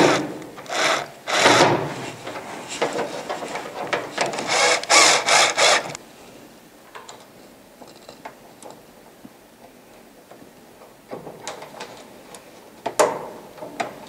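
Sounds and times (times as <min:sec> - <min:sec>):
cordless drill driving screw into metal: 0:00.0 - 0:01.9, 0:04.2 - 0:06.0.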